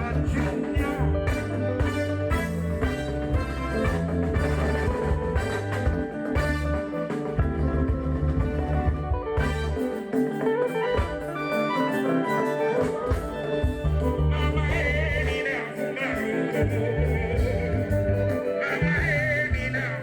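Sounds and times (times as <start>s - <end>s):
person singing: 0.0s - 1.8s, 13.5s - 20.0s
deep bass notes: 0.0s - 9.8s, 13.5s - 15.4s, 16.6s - 20.0s
guitar lines: 0.0s - 20.0s.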